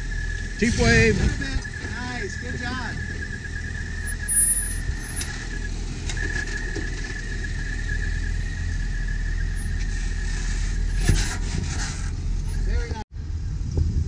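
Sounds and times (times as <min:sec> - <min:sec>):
high-pitched squeal: 0:00.0 - 0:13.0
engine low rumble: 0:00.0 - 0:14.0.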